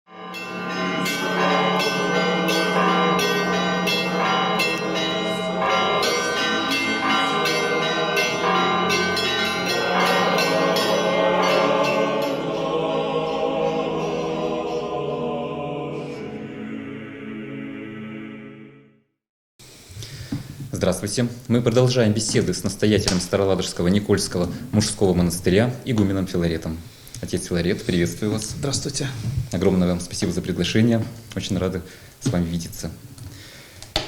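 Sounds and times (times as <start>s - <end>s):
church bells ringing: 0.1s - 15.3s.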